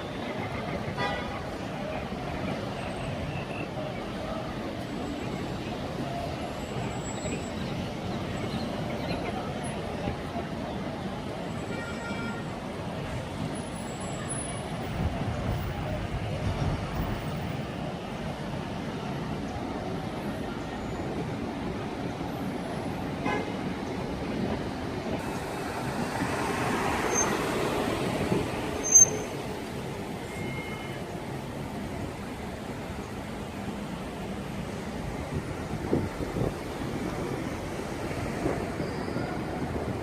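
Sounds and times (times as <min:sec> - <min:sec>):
cars passing: 0:12.4 - 0:40.0.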